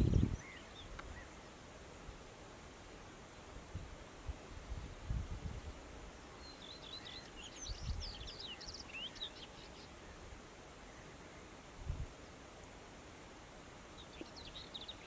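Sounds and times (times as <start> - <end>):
bird singing high chirps and trills: 0.0 - 1.5, 6.4 - 10.2, 13.9 - 15.0.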